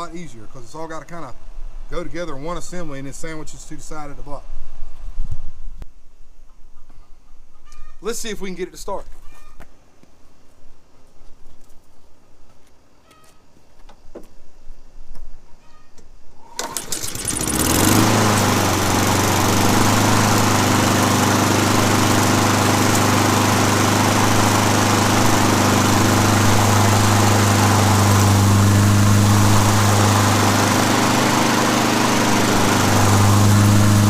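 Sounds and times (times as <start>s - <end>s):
lawn mower engine starting: 16.4s - 34.0s.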